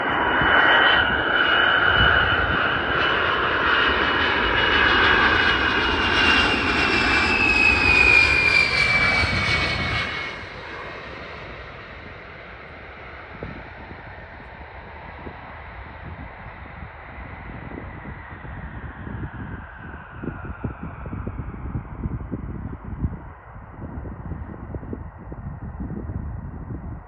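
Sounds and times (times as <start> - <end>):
jet aircraft passing: 0.0 - 22.2.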